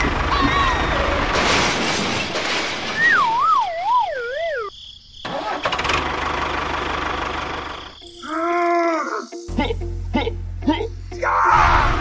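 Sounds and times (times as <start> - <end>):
engine-like running noise: 0.0 - 2.1, 5.3 - 8.0
cartoon wobbling whistle sliding down: 3.0 - 4.7.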